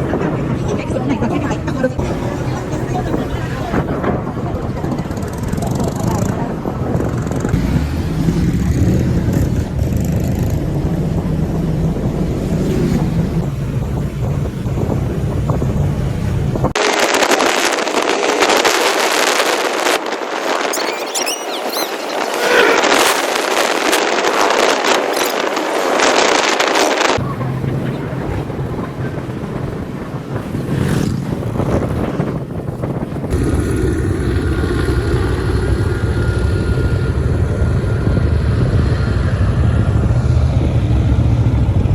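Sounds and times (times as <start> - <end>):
low engine and road drone: 0.0 - 41.9
wind rushing over microphone: 0.0 - 41.9.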